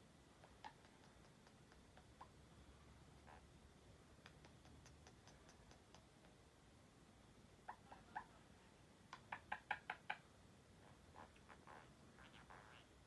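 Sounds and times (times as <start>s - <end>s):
pet bird clicking: 0.4s - 2.3s, 4.2s - 6.4s.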